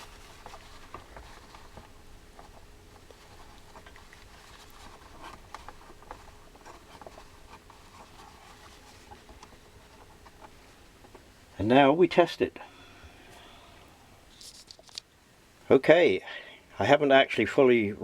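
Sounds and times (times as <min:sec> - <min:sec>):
rubbing and scratching circuit board: 0:00.0 - 0:10.6.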